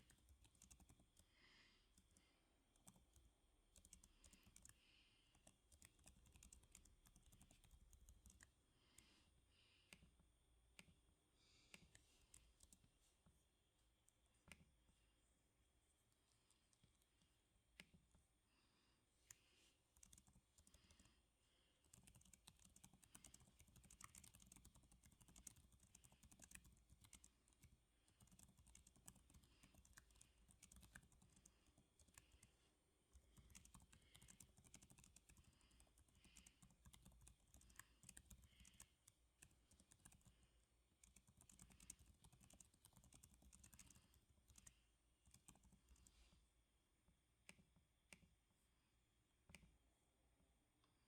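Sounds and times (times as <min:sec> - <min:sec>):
typing on computer keyboard: 0:00.0 - 0:01.3, 0:02.8 - 0:08.6, 0:20.0 - 0:21.1, 0:21.8 - 0:32.5, 0:33.1 - 0:46.1.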